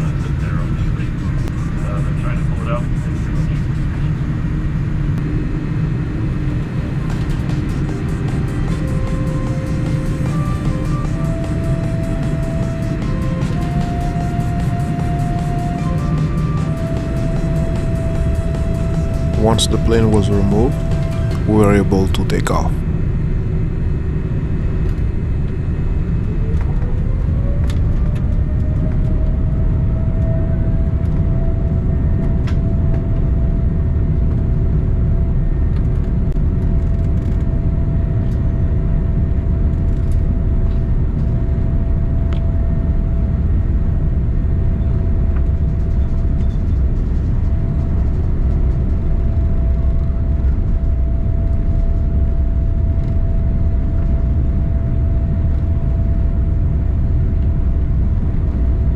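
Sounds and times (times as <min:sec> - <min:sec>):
jet engines whining: 0:00.0 - 0:22.8.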